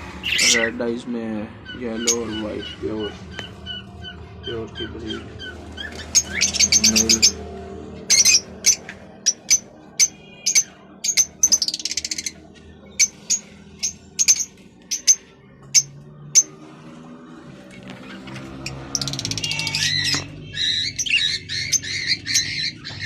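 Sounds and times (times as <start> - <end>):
birds chirping: 0.0 - 23.0
bird chatter: 1.6 - 7.4, 18.0 - 23.0.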